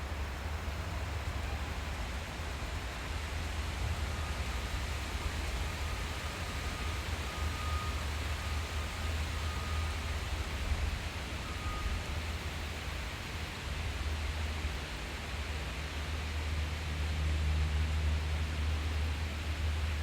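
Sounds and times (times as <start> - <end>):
constant low rumble: 0.0 - 20.0
faint thin whistle-like tone: 0.6 - 1.9, 5.6 - 13.0.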